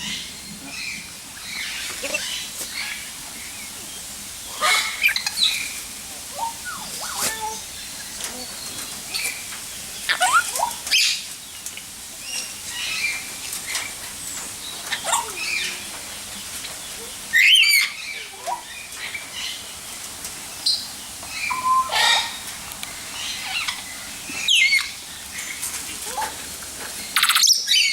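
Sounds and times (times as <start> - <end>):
birds chirping and whistling: 0.0 - 11.3, 20.7 - 25.6
loud harsh bird call: 21.4 - 22.5.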